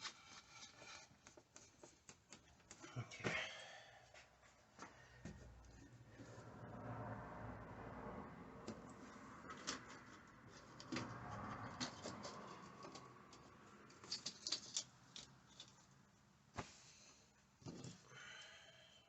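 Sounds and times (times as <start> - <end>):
faint clicks taps and rustles: 0.0 - 3.5, 8.6 - 16.7.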